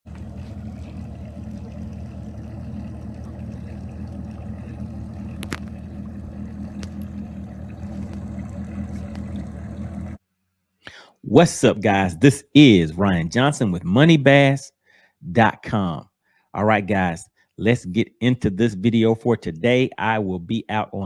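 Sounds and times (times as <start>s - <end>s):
outboard motor running: 0.0s - 10.2s.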